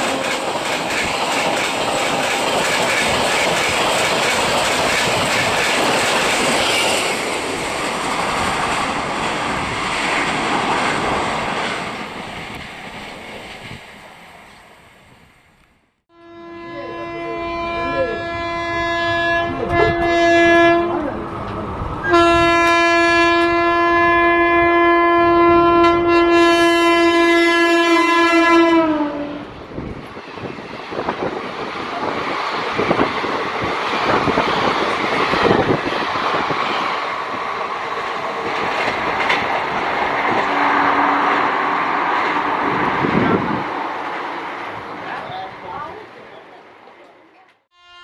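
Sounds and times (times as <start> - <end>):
train coaches rumbling past: 0.0 - 15.8, 17.0 - 47.6
train horn blasts: 16.1 - 21.2, 22.0 - 29.5, 40.4 - 41.6, 47.7 - 48.0.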